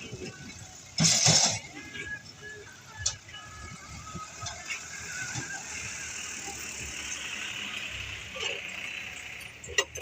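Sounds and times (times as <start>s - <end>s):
vehicle running close by: 4.8s - 10.0s.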